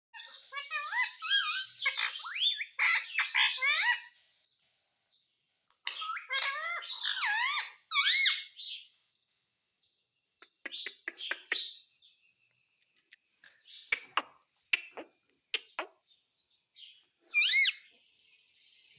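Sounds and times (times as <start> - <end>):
parrot chirping and squawking: 0.2 - 4.2, 5.7 - 8.8, 10.4 - 11.9, 13.6 - 16.1, 17.2 - 17.9.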